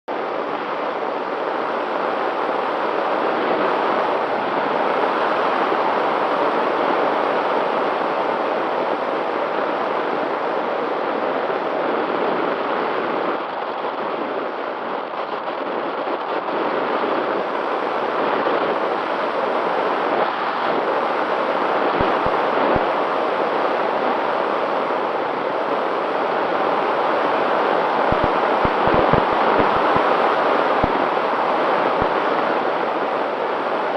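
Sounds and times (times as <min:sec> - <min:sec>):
strong wind on microphone: 0:00.1 - 0:33.9.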